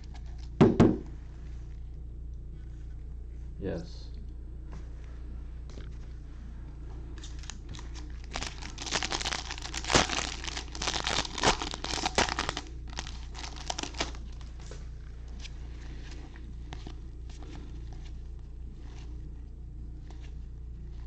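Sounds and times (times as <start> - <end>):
card pack wrapper crinkling: 7.2 - 14.7.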